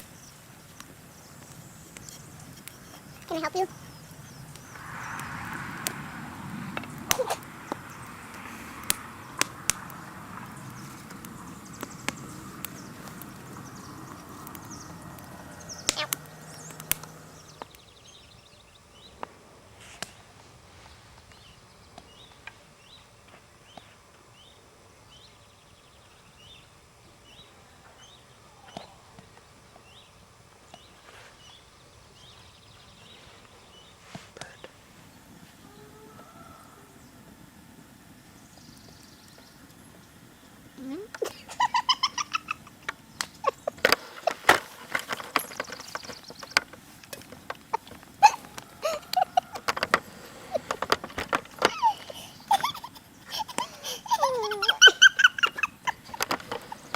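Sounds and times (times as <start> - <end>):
bird chirping: 0.0 - 19.2, 20.1 - 37.4, 38.1 - 56.9
low murmur: 0.0 - 22.8
campfire crackles: 0.0 - 56.9.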